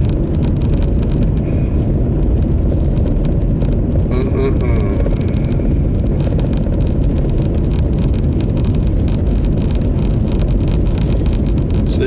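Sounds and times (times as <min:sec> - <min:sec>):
engine and road noise rumble: 0:00.0 - 0:12.0.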